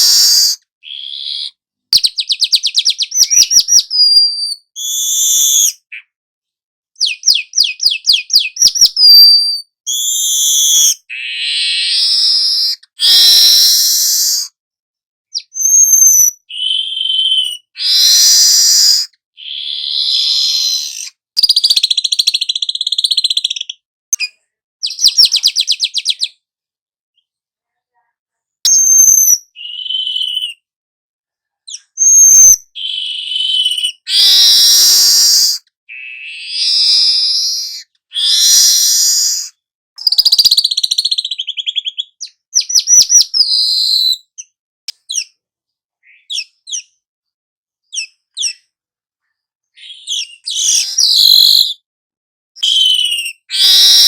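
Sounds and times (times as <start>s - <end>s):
bird singing trills and whistles: 0.0s - 6.2s, 7.0s - 14.5s, 15.3s - 26.4s, 28.7s - 30.7s, 31.7s - 45.4s, 46.0s - 47.0s, 47.9s - 48.7s, 49.7s - 51.8s, 52.6s - 54.0s.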